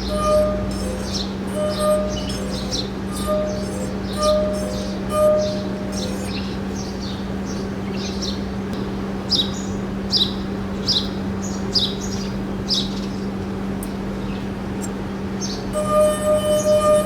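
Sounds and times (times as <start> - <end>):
bird chirping high falling calls: 0.0 - 8.4
steady low hum: 0.0 - 17.0.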